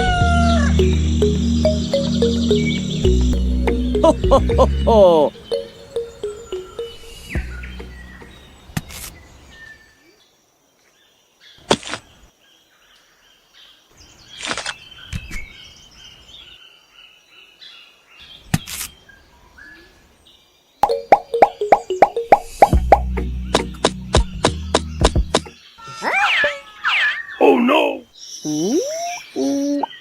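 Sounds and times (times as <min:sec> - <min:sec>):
birds chirping: 0:00.0 - 0:09.4, 0:20.8 - 0:30.0.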